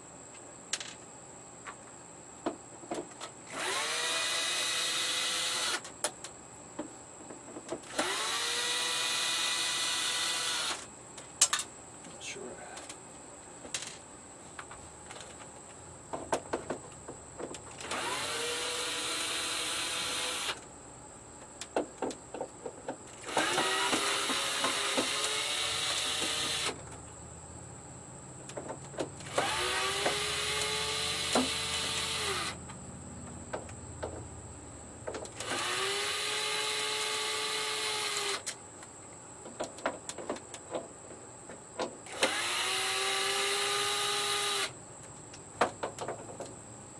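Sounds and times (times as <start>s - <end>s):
cordless drill whining: 3.5s - 5.9s, 7.9s - 10.9s, 17.8s - 20.6s, 23.2s - 26.8s, 29.3s - 32.6s, 35.4s - 38.5s, 42.1s - 44.7s.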